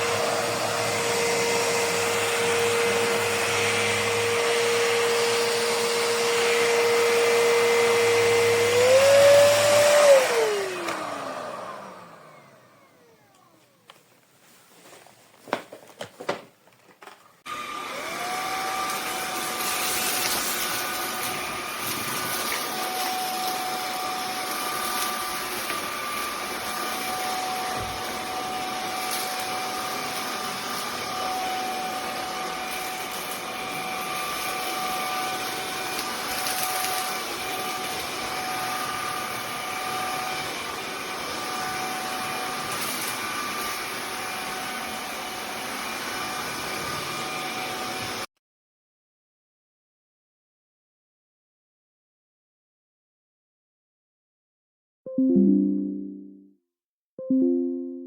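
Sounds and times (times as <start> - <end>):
vacuum motor whining: 0.0 - 14.0, 17.5 - 48.3.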